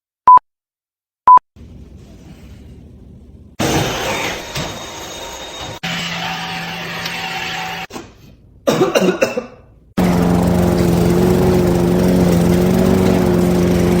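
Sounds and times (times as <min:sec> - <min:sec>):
rough cough-like burst: 0:08.7 - 0:09.6.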